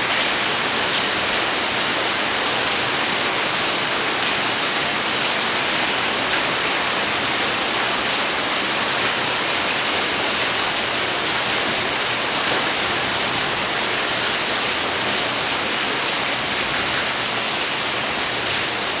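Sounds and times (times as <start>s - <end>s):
rain falling steadily: 0.0s - 19.0s.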